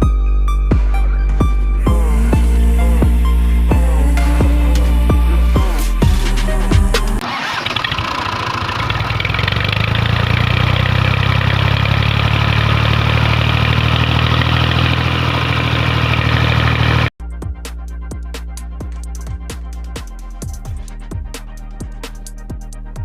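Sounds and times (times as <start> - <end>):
small engine running: 7.2 - 17.1.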